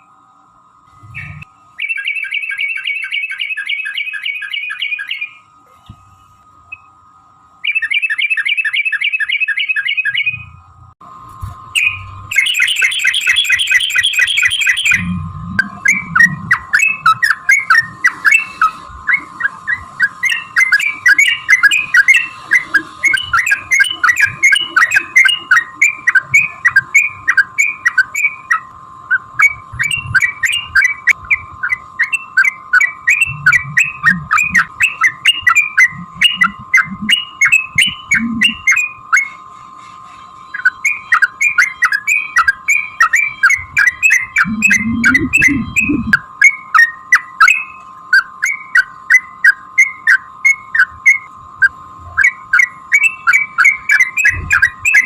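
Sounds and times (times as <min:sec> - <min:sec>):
bird chattering song: 0:01.1 - 0:05.5, 0:07.6 - 0:10.5, 0:11.8 - 0:39.4, 0:40.1 - 0:51.3, 0:52.2 - 0:55.0
steady even tone: 0:11.8 - 0:26.8, 0:29.1 - 0:38.8, 0:43.5 - 0:46.2.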